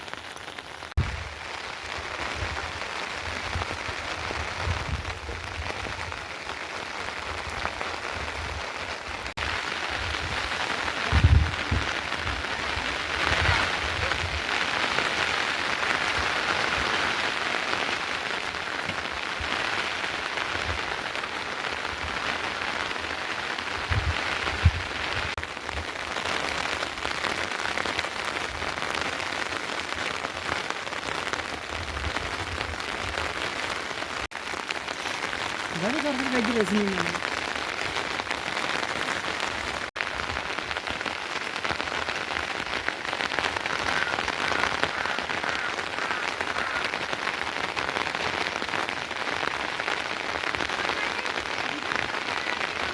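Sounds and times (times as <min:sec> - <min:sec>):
rain falling: 0:00.0 - 0:52.9.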